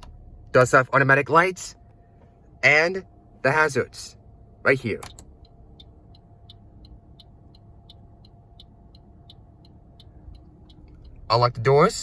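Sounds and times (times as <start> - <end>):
car engine idling: 0.0 - 12.0
hazard light flasher ticking: 5.0 - 11.5.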